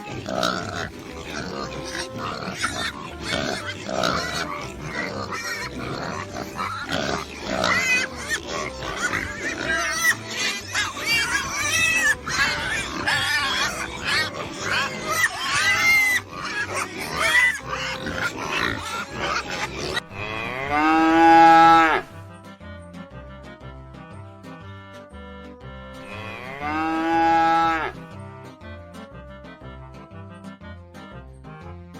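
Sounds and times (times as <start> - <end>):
cow mooing: 0.0 - 10.3, 11.7 - 22.2, 26.1 - 28.0
livestock calls: 0.0 - 22.2, 26.0 - 28.0
background music: 0.0 - 31.9.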